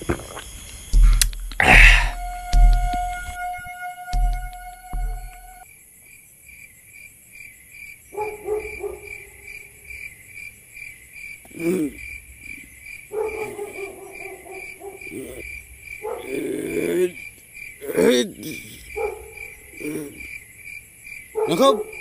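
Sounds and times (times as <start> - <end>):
crickets chirping: 0.0 - 22.0
low sustained sound: 1.6 - 5.6
brief falling pitch sound: 2.1 - 5.6.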